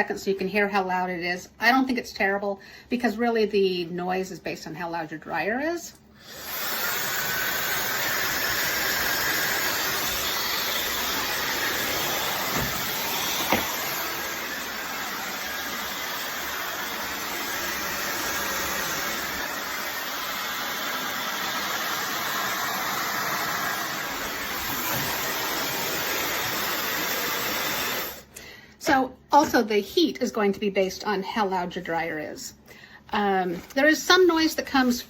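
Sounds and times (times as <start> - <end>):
blow dryer rushing hiss: 6.2 - 28.3.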